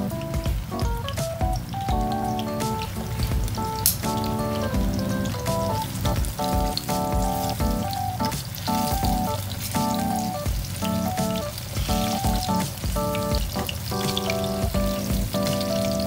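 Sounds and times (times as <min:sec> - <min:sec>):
rhythmic background music: 0:00.0 - 0:16.0
bananas sizzling in oil: 0:06.7 - 0:16.0.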